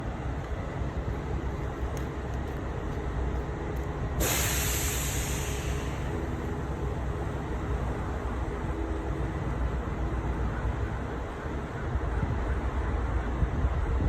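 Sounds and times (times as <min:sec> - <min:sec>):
low engine rumble: 0:00.0 - 0:10.1
loud hiss of air: 0:04.2 - 0:06.3.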